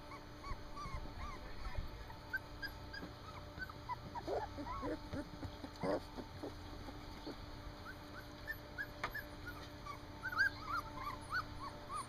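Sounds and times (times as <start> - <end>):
puppies whimpering: 0.0 - 12.0.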